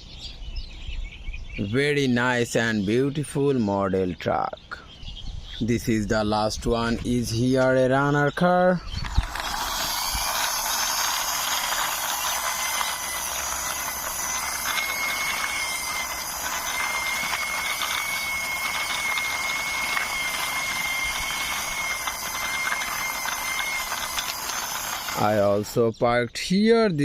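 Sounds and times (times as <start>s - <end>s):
toy car wheels whirring: 8.8s - 25.8s.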